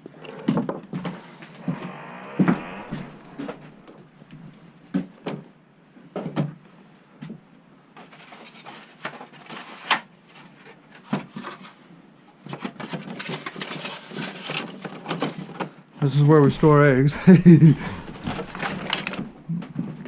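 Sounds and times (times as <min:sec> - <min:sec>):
rustling and clicking: 0:17.9 - 0:19.8.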